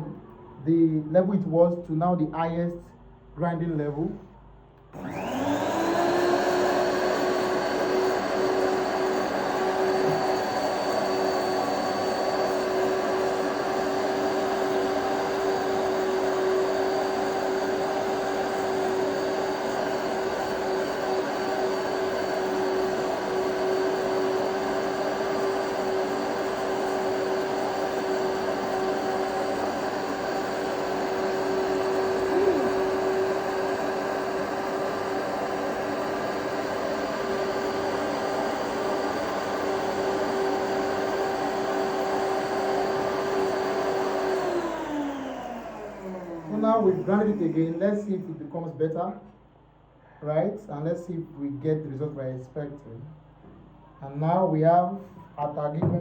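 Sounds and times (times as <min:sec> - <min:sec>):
electric grinder whining: 0:04.9 - 0:48.0.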